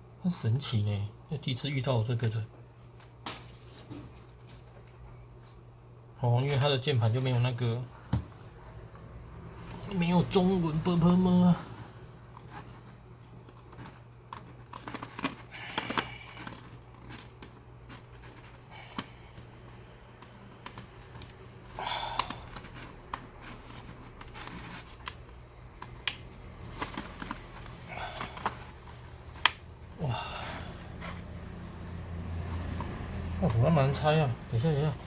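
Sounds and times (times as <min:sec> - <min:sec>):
steady low hum: 0:00.0 - 0:35.0
plastic scraping: 0:22.3 - 0:29.6.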